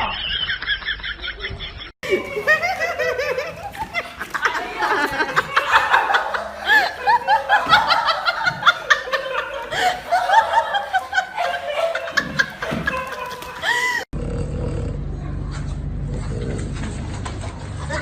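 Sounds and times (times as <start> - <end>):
people laughing and snickering: 0.0 - 14.2.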